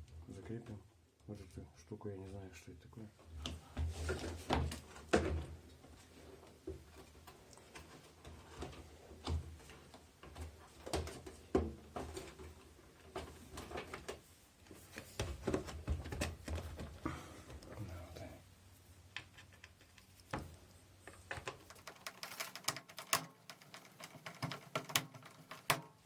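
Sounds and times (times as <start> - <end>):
clicks and knocks of parts: 21.1 - 26.0.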